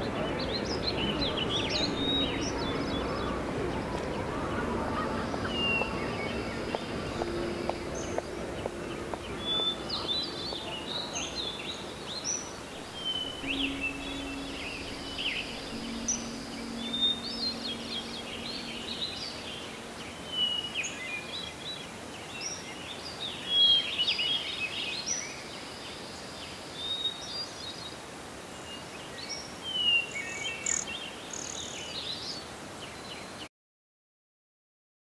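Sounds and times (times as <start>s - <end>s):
small birds chirping: 0.0s - 21.8s
low hum: 0.0s - 22.1s
background hiss: 0.0s - 33.4s.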